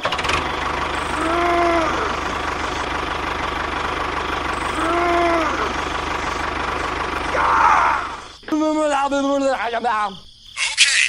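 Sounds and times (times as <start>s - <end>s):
small engine chattering: 0.0s - 8.5s.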